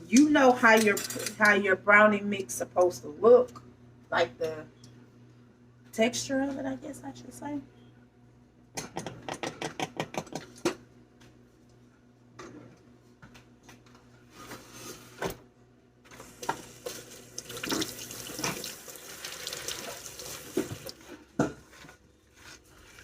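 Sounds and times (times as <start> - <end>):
kitchen tap running: 16.2 - 21.1.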